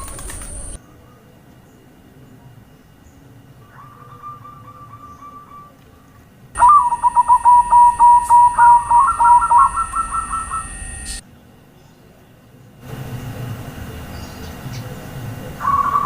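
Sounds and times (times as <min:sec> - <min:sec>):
dove cooing rapidly: 0:03.6 - 0:05.8, 0:06.6 - 0:10.8, 0:15.6 - 0:16.0.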